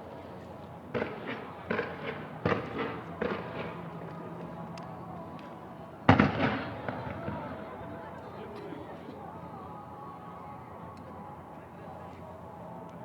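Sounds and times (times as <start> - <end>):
fireworks bangs echoing: 0.9 - 3.8, 6.1 - 7.2.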